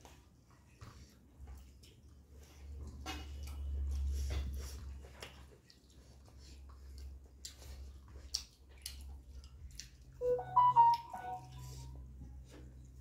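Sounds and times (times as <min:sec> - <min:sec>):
chewing and lip-smacking: 0:00.0 - 0:13.0
brief pitched sound: 0:10.2 - 0:11.8.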